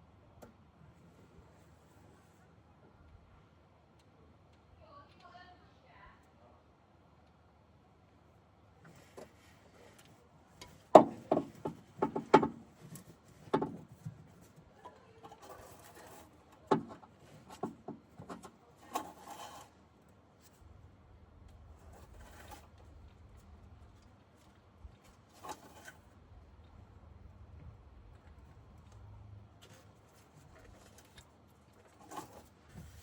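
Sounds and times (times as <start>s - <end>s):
metal scraping: 18.3s - 19.8s, 25.3s - 26.1s.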